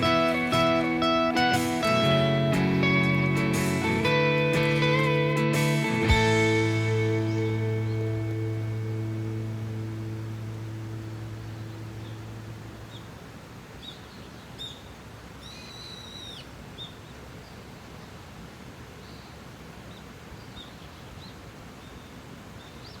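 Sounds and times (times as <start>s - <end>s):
background music: 0.0s - 12.0s
outdoor hiss: 0.0s - 23.0s
small birds chirping: 6.1s - 18.2s.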